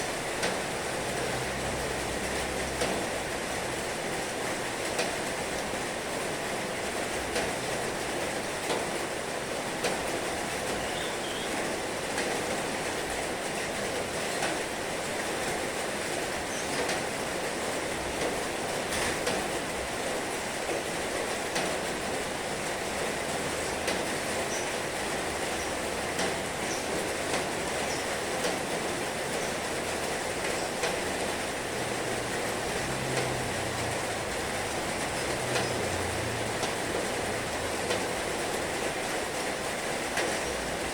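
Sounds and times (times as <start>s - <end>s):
heavy rain hissing: 0.0s - 40.9s
rain drop taps: 1.4s - 3.1s, 23.6s - 39.2s, 40.1s - 40.6s.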